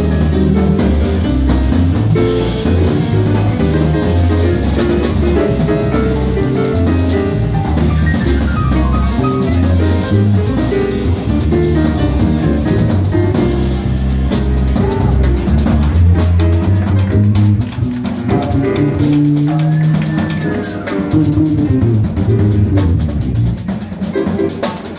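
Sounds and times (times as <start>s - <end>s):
walking bass line: 0.0s - 24.6s
drum kit: 0.0s - 24.9s
jazz combo playing: 0.0s - 24.9s.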